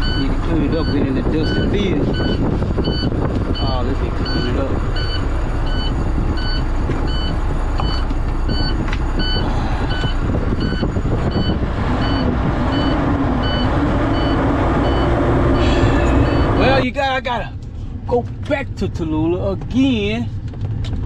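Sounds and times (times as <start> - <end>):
electronic warning beeps: 0.0 - 16.8
truck diesel engine running: 0.0 - 20.8.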